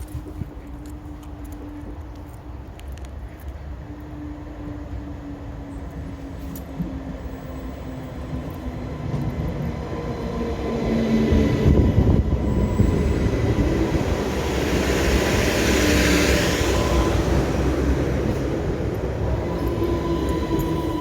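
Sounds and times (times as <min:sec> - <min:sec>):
train passing: 0:00.0 - 0:21.0
faint whining tones: 0:16.5 - 0:21.0.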